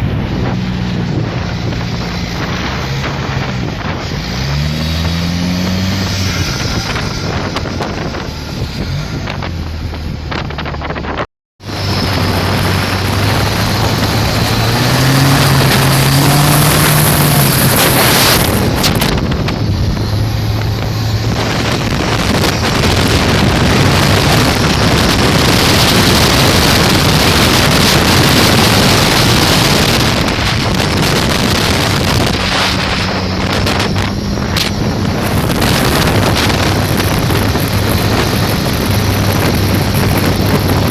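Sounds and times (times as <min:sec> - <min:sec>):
motorboat engine running: 0:00.0 - 0:40.9
wind buffeting microphone: 0:00.0 - 0:40.9
water rushing: 0:11.6 - 0:40.9.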